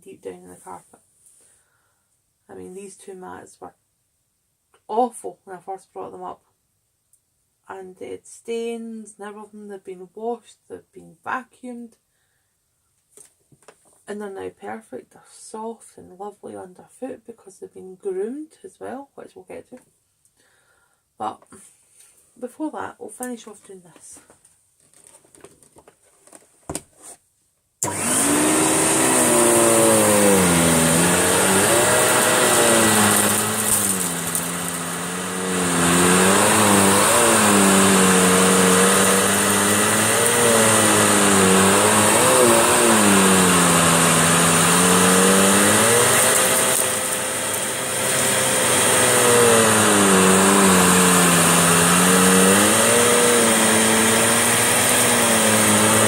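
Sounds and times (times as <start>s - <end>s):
vacuum cleaner running: 27.8s - 56.0s.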